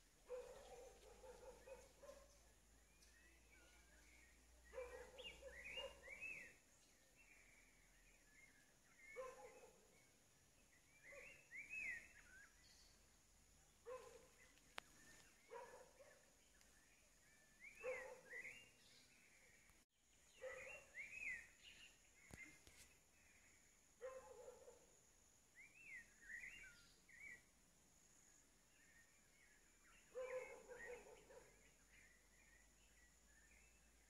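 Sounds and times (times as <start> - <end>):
lower bird calls: 0.0 - 6.6.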